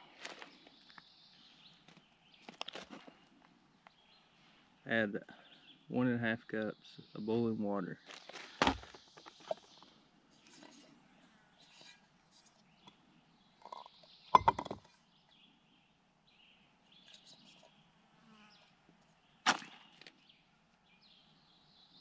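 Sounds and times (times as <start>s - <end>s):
faint birds chirping: 0.0s - 22.0s
camp gear knocking: 13.6s - 14.9s.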